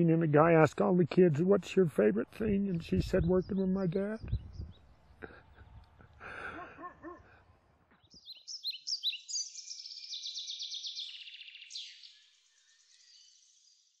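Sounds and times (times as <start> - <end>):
songbird chirping and trilling: 2.4 - 5.9, 7.9 - 14.0.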